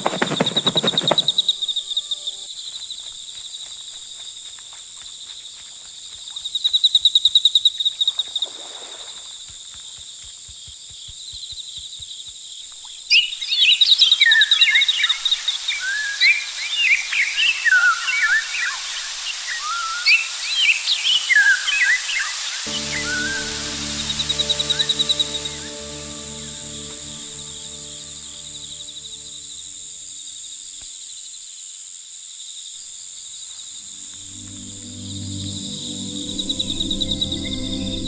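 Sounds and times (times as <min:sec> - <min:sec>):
insects trilling: 0:00.0 - 0:08.5.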